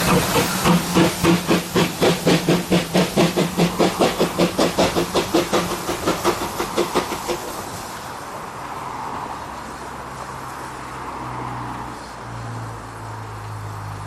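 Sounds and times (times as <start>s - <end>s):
steam train rushing noise: 0.0s - 9.5s.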